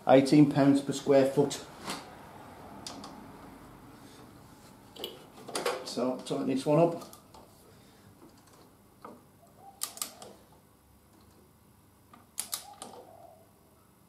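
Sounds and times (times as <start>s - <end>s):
torque wrench clicks: 12.4s - 12.9s.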